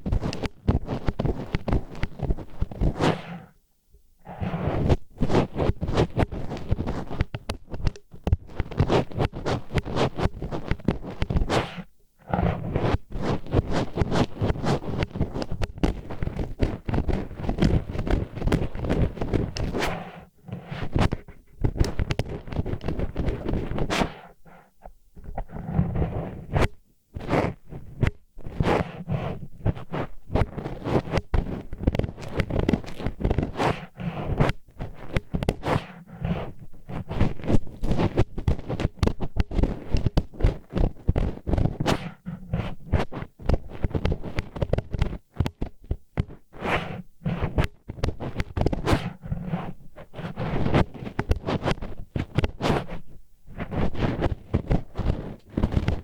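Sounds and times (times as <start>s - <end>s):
chopsticks scraping microphone: 0.0s - 3.5s, 4.2s - 56.0s.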